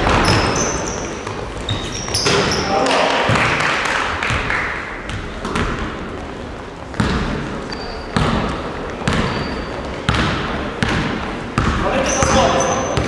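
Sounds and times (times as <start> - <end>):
basketballs bouncing on gym floor: 0.0 - 13.0
high squeaks: 0.2 - 2.8, 7.7 - 8.2.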